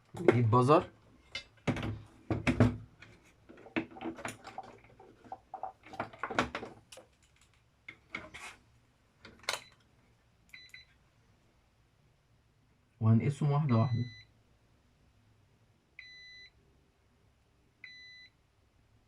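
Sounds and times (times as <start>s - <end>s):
clicks and knocks of handling: 1.3s - 8.4s.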